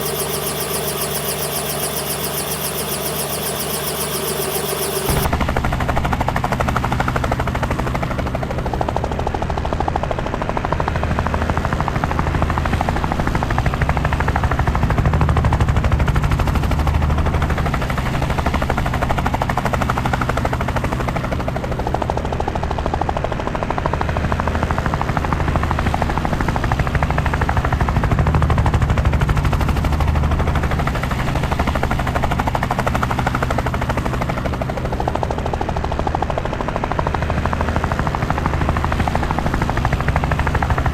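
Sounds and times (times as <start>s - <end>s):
low engine drone: 0.0s - 5.3s
helicopter rotor chop: 0.0s - 40.9s.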